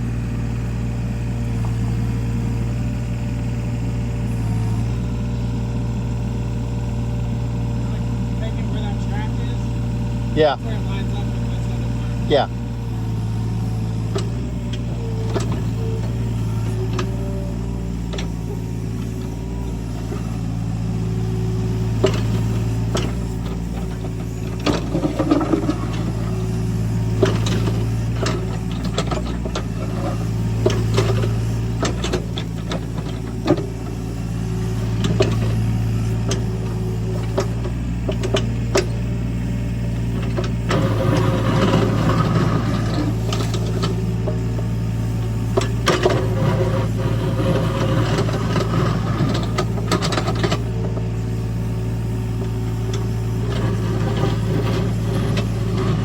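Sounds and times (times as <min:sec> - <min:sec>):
heavy machine engine running: 0:00.0 - 0:56.0
sharp clanks and knocks: 0:21.8 - 0:26.3, 0:27.0 - 0:33.7, 0:36.2 - 0:39.0, 0:45.4 - 0:51.4.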